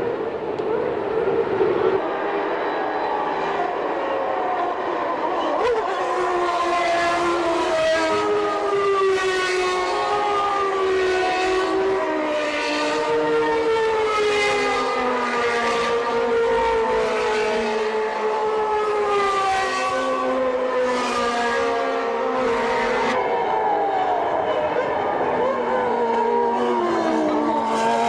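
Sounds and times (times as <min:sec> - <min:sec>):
racing car engines at high revs: 0:04.7 - 0:23.2, 0:24.6 - 0:28.0.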